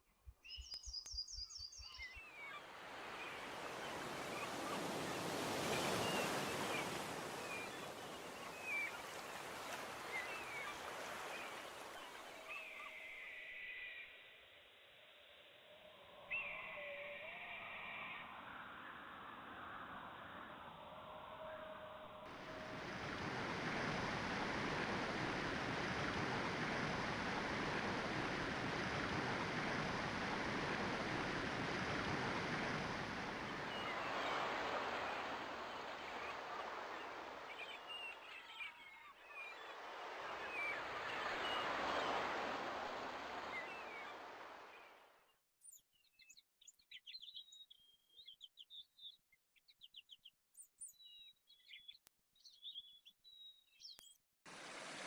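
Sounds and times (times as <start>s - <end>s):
birds chirping: 0.4s - 13.6s, 32.6s - 45.0s
steady rushing noise: 22.3s - 37.0s.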